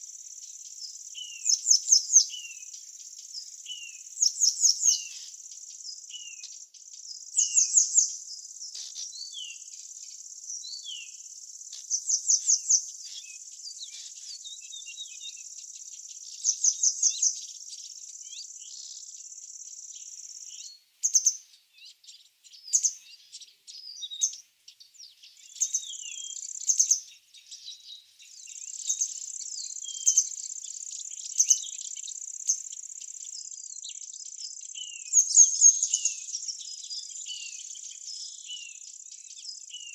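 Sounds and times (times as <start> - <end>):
birds chirping: 0.0 - 39.9
high-pitched insect trill: 25.5 - 27.8, 28.4 - 34.0.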